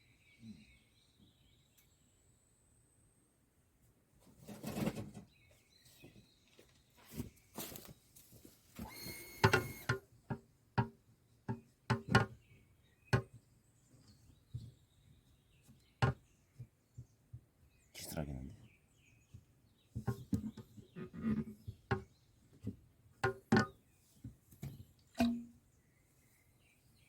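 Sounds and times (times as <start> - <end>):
sharp knocks and clunks: 21.6 - 23.8.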